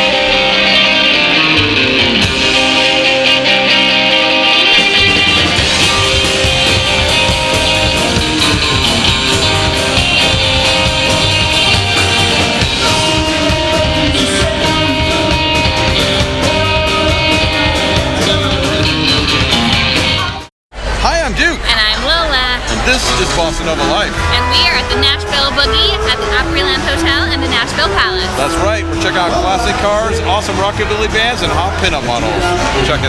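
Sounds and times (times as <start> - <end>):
electric guitar: 0.0 - 20.5
rockabilly band playing: 0.0 - 33.0
steady drum beat: 4.8 - 20.5.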